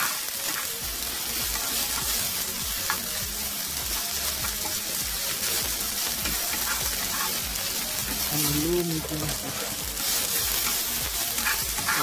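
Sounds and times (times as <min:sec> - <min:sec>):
food sizzling in a frying pan: 0:00.0 - 0:12.0
wooden spatula scraping a pan: 0:06.3 - 0:07.4, 0:11.4 - 0:12.0.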